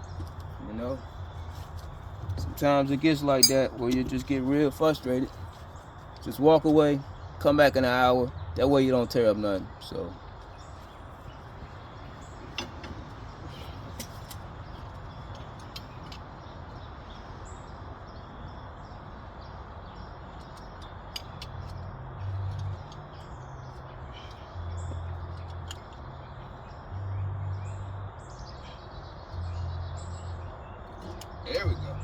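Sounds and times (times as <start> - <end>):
small birds chirping: 0.0 - 32.0
low outdoor rumble: 22.1 - 32.0.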